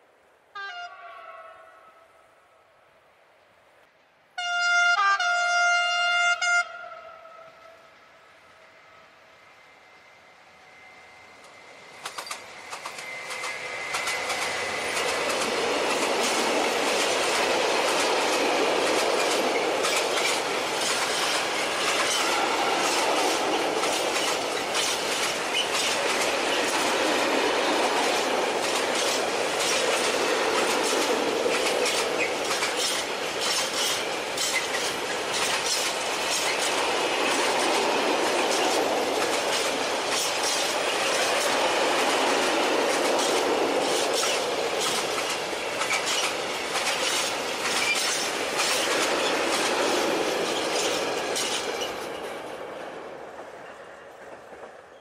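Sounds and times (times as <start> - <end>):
freight train rolling: 6.0 - 55.0
wheels clicking over rail joints: 11.4 - 54.9.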